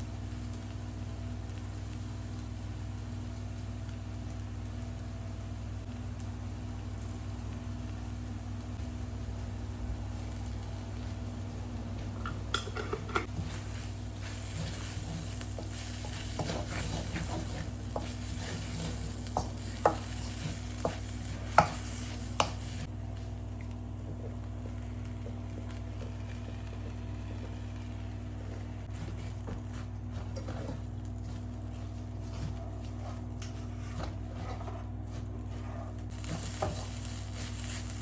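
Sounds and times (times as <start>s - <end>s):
rice sizzling in a pan: 0.0s - 38.0s
steady low hum: 0.0s - 38.0s.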